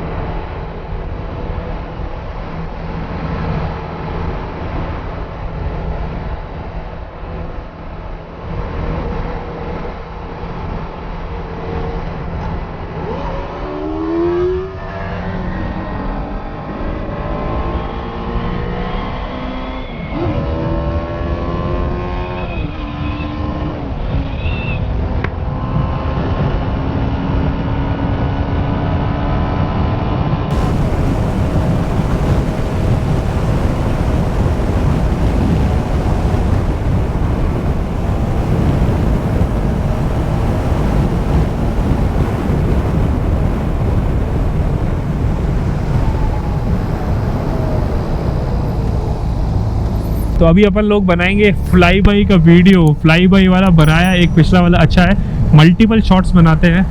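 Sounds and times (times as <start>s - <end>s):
motorcycle engine revving: 30.5s - 50.4s
wind noise: 30.5s - 56.9s.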